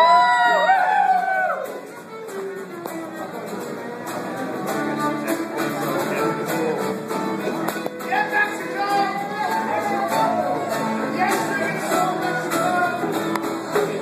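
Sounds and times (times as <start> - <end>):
guitar: 0.0 - 14.0
fiddle: 1.0 - 14.0.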